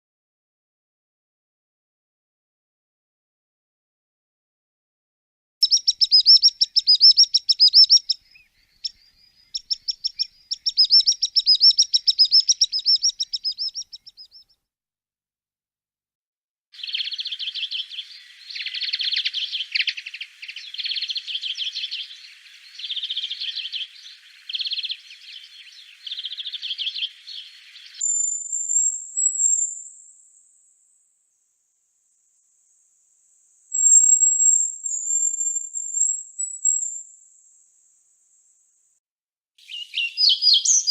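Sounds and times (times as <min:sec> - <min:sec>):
bird warbling song: 0:05.6 - 0:14.5, 0:16.8 - 0:29.8, 0:33.7 - 0:37.0, 0:39.6 - 0:40.9.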